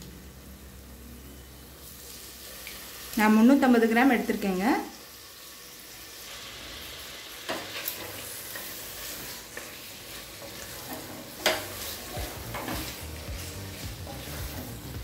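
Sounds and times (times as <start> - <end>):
meat sizzling in oil: 0.0 - 15.0
spatula scraping a pot: 7.5 - 14.9.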